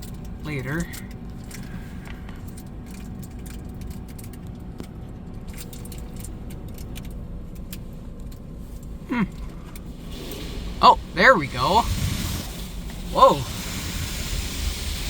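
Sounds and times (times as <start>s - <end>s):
light clicks and ticks: 0.0s - 9.9s
car wash rumble: 0.0s - 15.0s.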